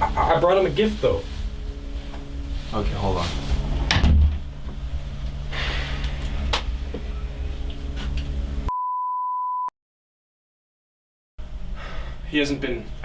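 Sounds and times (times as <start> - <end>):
steady room hum: 0.0 - 8.7
electronic beep tone: 8.7 - 9.7.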